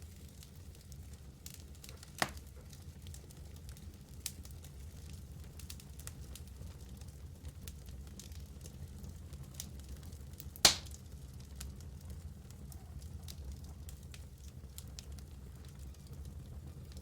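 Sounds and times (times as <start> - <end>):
low rumble of flames: 0.0 - 17.0
wood fire crackling: 0.0 - 17.0
sharp fire pops: 2.2 - 2.4, 10.6 - 11.0.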